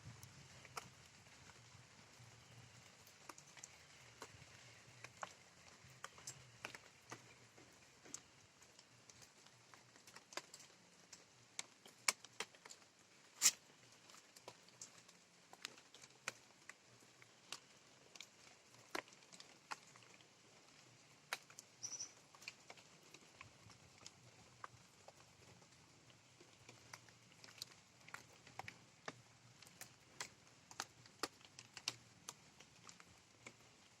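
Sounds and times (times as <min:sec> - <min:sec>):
faint hiss of light rain: 0:00.0 - 0:34.0
raindrops dripping and tapping: 0:00.0 - 0:34.0.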